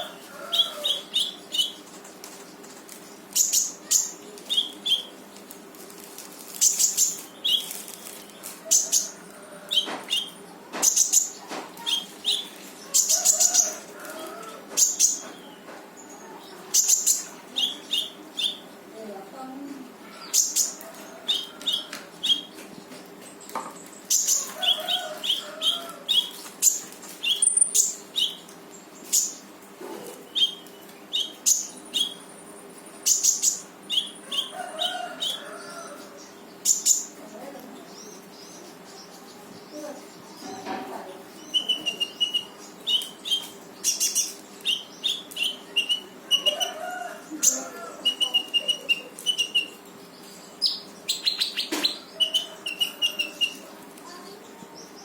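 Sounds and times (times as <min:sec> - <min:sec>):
bird singing rapid chirps: 0:00.0 - 0:01.9, 0:03.2 - 0:05.2, 0:16.7 - 0:18.7, 0:20.4 - 0:22.6, 0:23.9 - 0:29.5, 0:30.3 - 0:35.4, 0:41.3 - 0:46.8, 0:47.4 - 0:53.7.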